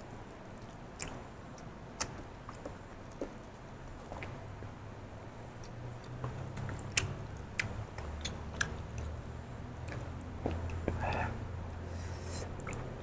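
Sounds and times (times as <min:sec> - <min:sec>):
low steady hum: 0:00.0 - 0:13.0
wet chewing and mouth smacks: 0:00.1 - 0:04.4, 0:05.6 - 0:09.2, 0:09.8 - 0:11.3, 0:12.2 - 0:12.9.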